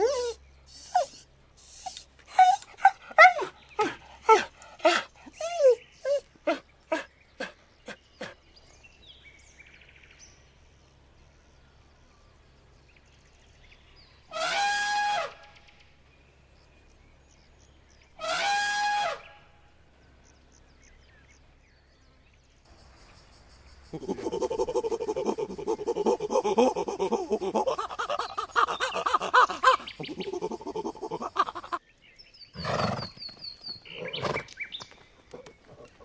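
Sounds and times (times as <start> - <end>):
elephant trumpeting: 14.3 - 15.4, 18.2 - 19.2.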